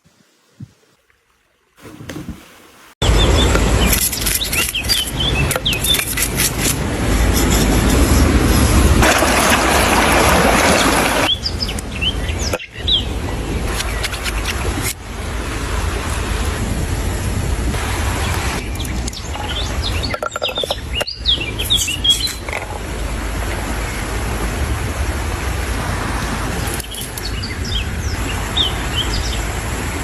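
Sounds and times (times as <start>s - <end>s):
birds chirping: 3.0s - 6.4s, 10.6s - 14.8s, 18.2s - 22.7s, 26.6s - 29.6s.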